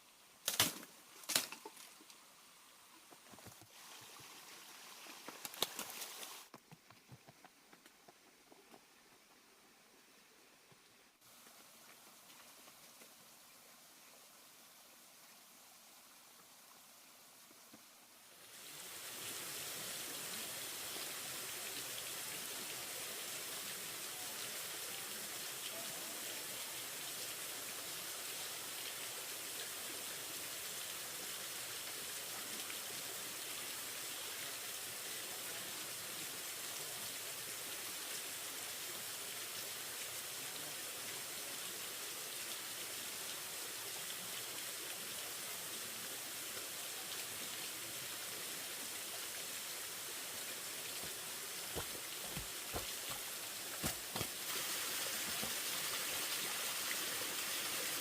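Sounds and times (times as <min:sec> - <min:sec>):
rain falling: 0:42.1 - 0:58.0.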